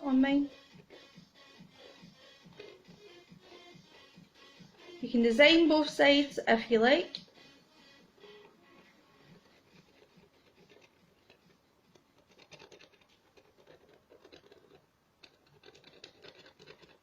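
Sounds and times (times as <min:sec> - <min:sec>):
marker scratching on cardboard: 0:00.6 - 0:04.1, 0:09.0 - 0:17.0.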